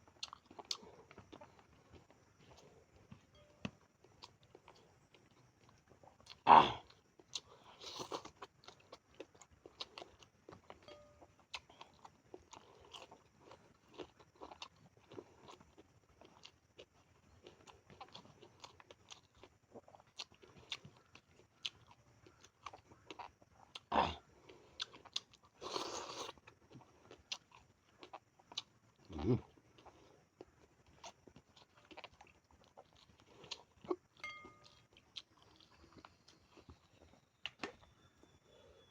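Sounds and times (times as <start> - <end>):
person chewing and crunching food: 0.0 - 38.6.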